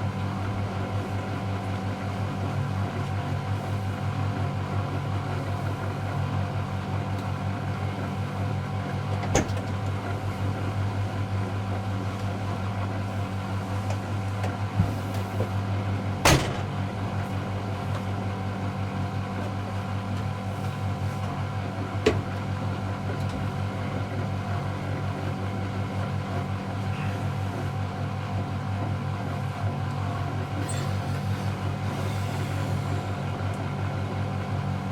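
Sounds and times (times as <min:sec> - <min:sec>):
washing machine humming: 0:00.0 - 0:34.9
knocks inside washing machine: 0:16.2 - 0:17.0, 0:22.0 - 0:22.4.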